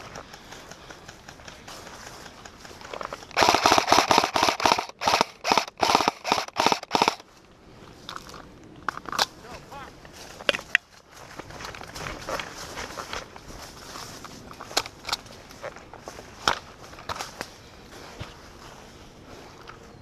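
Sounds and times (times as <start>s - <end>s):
airsoft gun firing shots: 3.3s - 7.2s.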